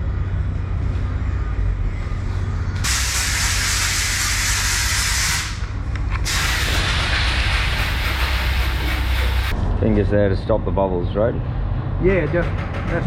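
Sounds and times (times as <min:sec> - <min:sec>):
low workshop hum: 0:00.0 - 0:13.0
compressed air hissing: 0:02.8 - 0:09.5.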